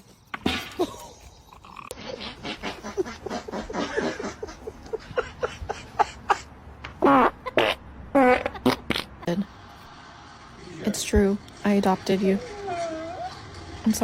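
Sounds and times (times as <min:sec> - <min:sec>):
dog crying: 0:12.4 - 0:13.4.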